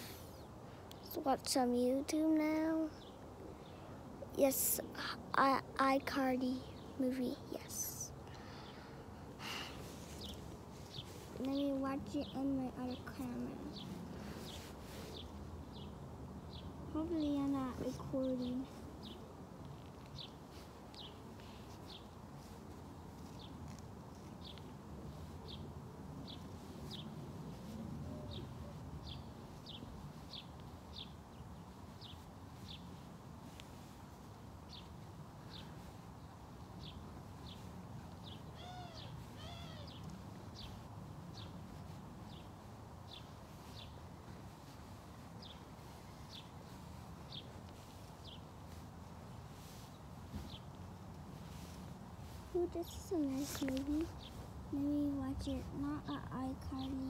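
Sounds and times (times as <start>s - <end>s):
small bird chirping: 10.0s - 34.0s, 34.6s - 57.0s
fuller bird calls: 34.7s - 44.0s.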